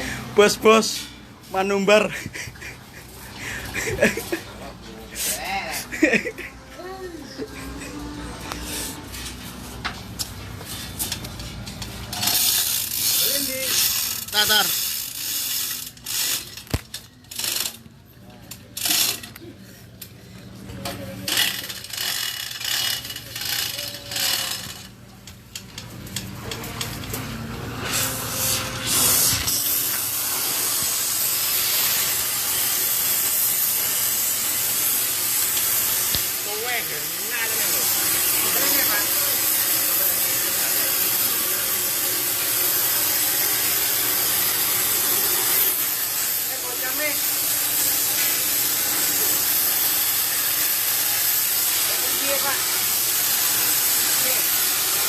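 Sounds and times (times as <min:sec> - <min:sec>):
mechanical rattling and ratcheting: 0:10.9 - 0:17.8, 0:18.5 - 0:19.4, 0:21.2 - 0:27.2, 0:28.5 - 0:55.0
steady hiss: 0:27.9 - 0:55.0.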